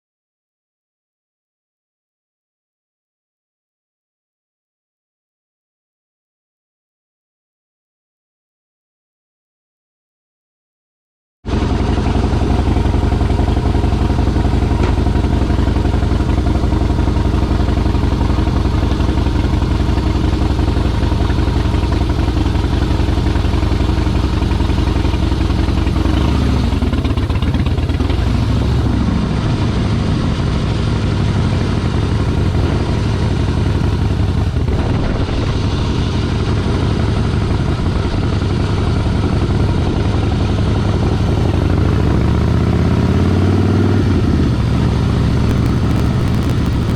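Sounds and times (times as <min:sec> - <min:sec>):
motorcycle engine idling: 0:11.5 - 0:29.1, 0:45.5 - 0:46.9.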